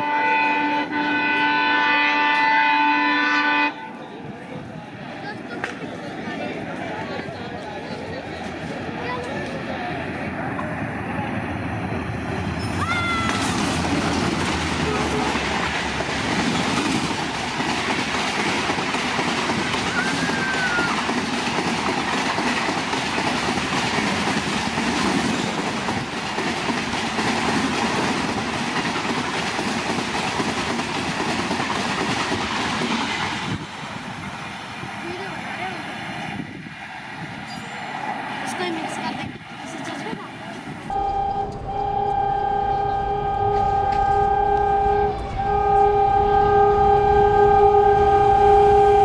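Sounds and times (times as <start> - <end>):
train horn: 0.0 - 4.0, 40.9 - 49.0
train clattering over rails: 4.1 - 49.0.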